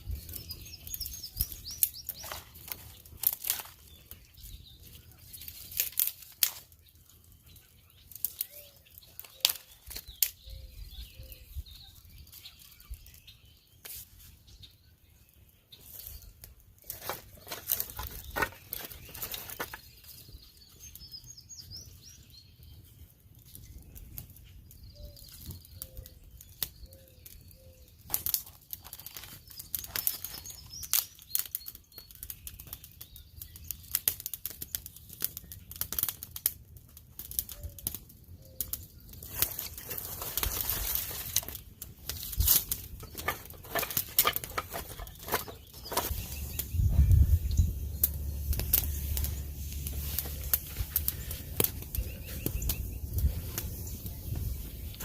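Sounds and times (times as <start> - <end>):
small birds chirping: 0.0 - 36.2, 37.3 - 55.0
rustling: 39.2 - 55.0.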